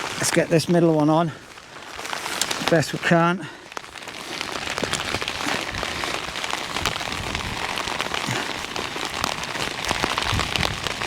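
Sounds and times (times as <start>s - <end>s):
heavy rain pattering: 0.0s - 11.0s
wind rumbling on microphone: 4.0s - 11.0s.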